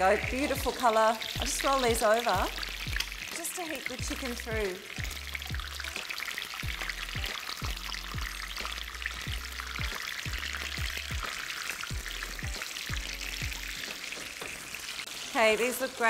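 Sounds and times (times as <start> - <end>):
chicken frying in oil: 0.0 - 16.0
background music with bass beat: 4.1 - 13.8.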